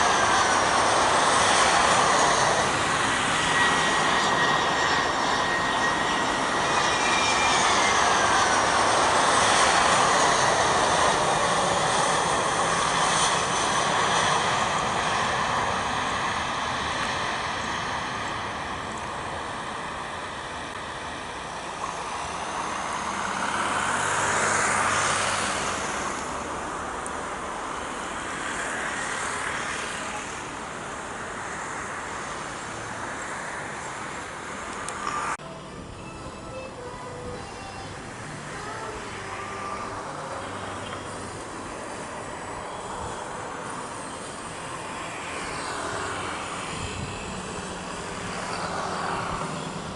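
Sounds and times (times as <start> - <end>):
airliner engines at takeoff: 0.0 - 49.9.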